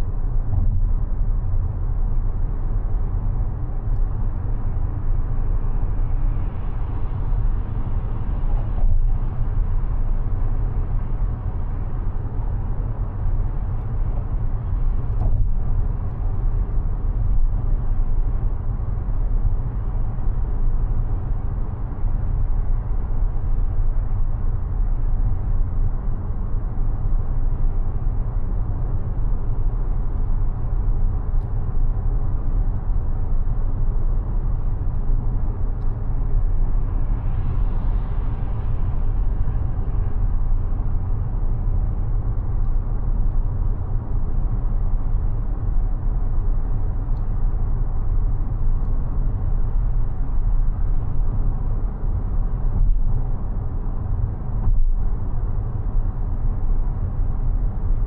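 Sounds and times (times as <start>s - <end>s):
road and tyre rumble: 0.0s - 58.0s.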